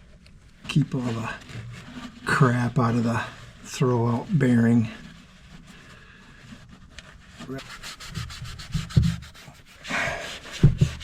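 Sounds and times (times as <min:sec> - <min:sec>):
dull knocks: 0:10.6 - 0:11.0.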